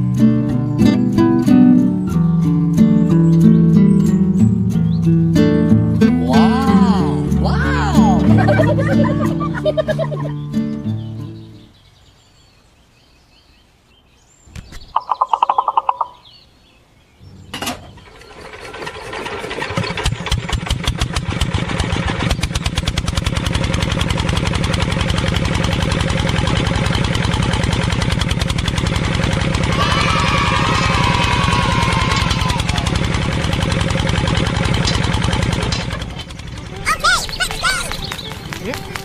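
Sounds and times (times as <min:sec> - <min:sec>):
small tractor engine running: 0:00.0 - 0:11.1, 0:17.4 - 0:39.0.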